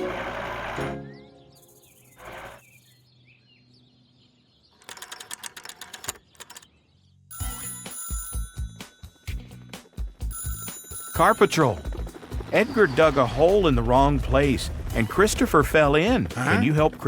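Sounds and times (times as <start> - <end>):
cartoon telephone bell ringing: 7.3 - 12.2.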